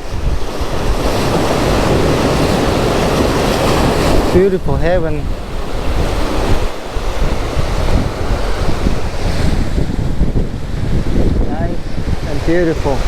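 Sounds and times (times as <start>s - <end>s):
ocean surf washing on shore: 0.0s - 13.0s
wind buffeting microphone: 0.0s - 13.0s.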